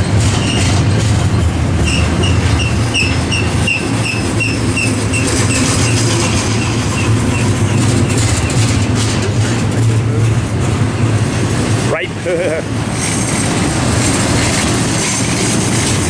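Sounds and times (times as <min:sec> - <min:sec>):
freight train cars rumbling: 0:00.0 - 0:16.0.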